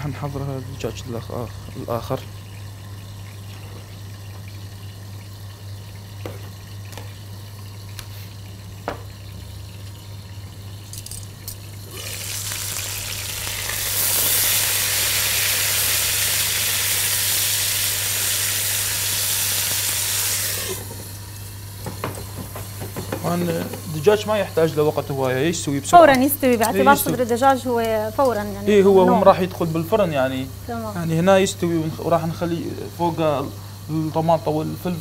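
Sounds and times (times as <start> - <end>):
chicken sizzling in oil: 11.4 - 35.0.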